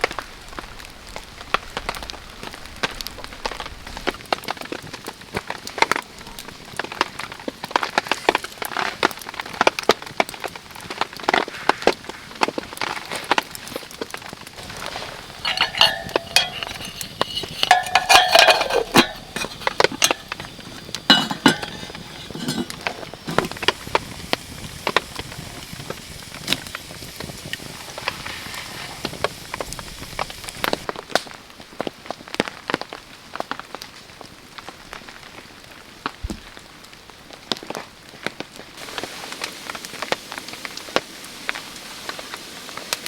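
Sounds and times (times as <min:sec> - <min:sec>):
campfire crackling: 0:10.2 - 0:30.9
metal cookware clinking: 0:14.6 - 0:23.8.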